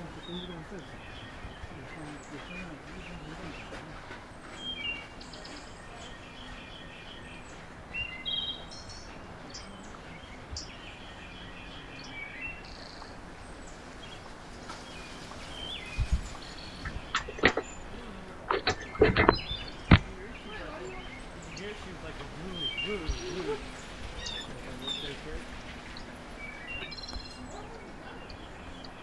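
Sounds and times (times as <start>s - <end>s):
small songbirds chirping: 0.0s - 29.0s
steady background hiss: 0.0s - 29.0s
sharp knocks: 16.0s - 20.4s.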